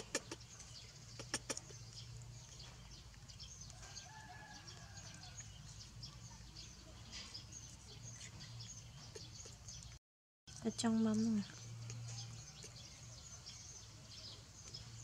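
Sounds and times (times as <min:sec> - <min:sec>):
small bird chirps: 0:00.0 - 0:15.0
sharp clicks: 0:01.2 - 0:02.0.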